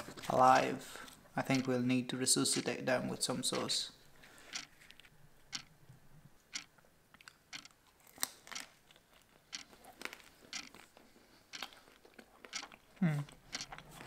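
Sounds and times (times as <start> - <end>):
person chewing crunchy food: 6.5 - 14.0.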